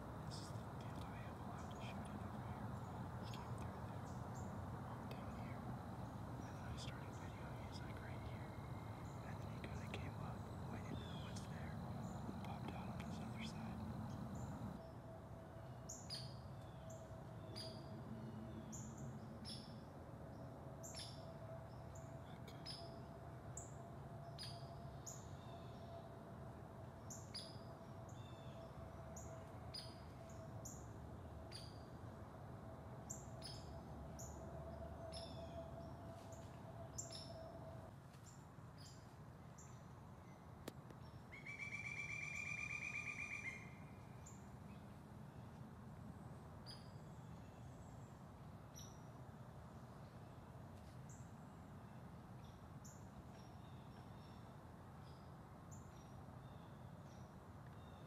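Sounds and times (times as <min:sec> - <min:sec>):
songbirds chipping: 0:00.0 - 0:14.8
faint steady hum: 0:00.0 - 0:58.0.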